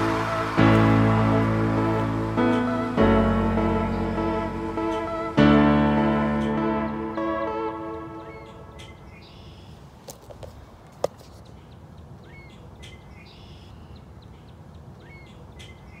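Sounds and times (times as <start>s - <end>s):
music: 0.0s - 8.8s
birds chirping and trilling: 2.0s - 9.9s, 11.4s - 16.0s.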